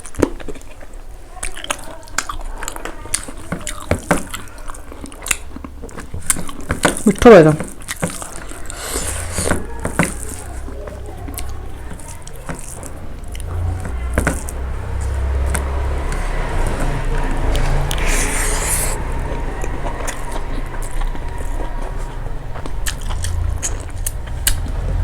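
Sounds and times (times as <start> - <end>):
person chewing food: 0.0 - 25.0
mouth clicks and smacks: 22.8 - 24.8.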